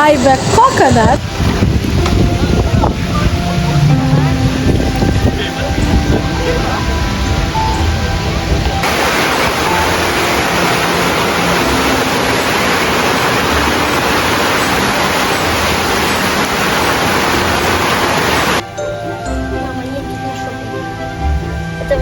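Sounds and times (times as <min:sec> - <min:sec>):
faint background music: 0:00.0 - 0:12.1, 0:18.6 - 0:22.0
rush of falling water: 0:00.0 - 0:18.7.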